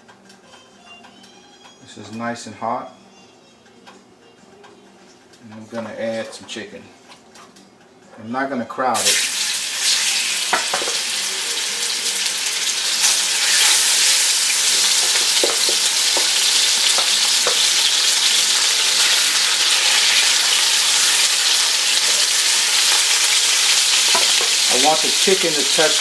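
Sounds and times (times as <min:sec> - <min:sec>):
chicken sizzling in hot oil: 0:09.0 - 0:26.0.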